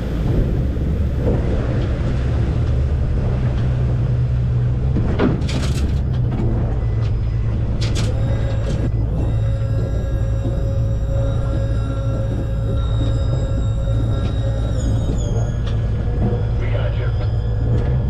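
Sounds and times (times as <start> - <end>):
boat motor humming: 0.0 - 18.0
held music tones: 6.0 - 18.0.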